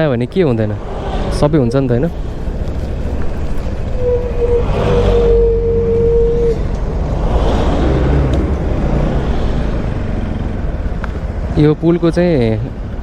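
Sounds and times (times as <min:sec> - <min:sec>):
wind noise: 0:00.0 - 0:11.6
steady tone: 0:00.2 - 0:10.9
motorcycle engine running: 0:06.6 - 0:13.0.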